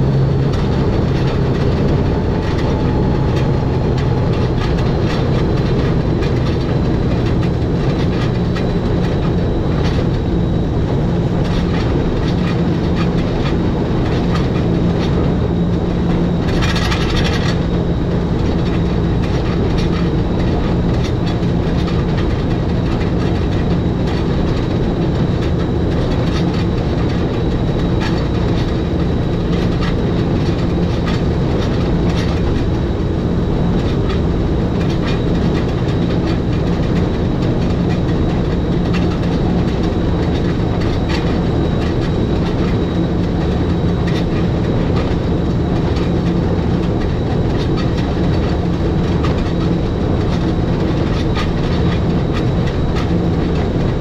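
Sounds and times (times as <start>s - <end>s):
wheels clicking over track: 0.0s - 10.2s
electric train hum: 0.0s - 54.0s.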